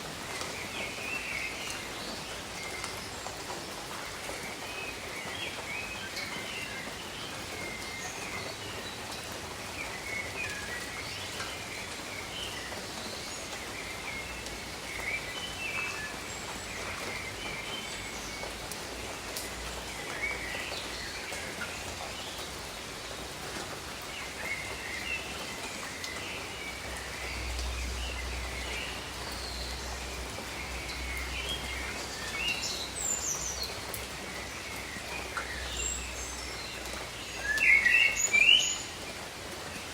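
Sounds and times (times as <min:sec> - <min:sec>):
steady rain falling: 0:00.0 - 0:39.9
small birds chirping: 0:00.3 - 0:39.9.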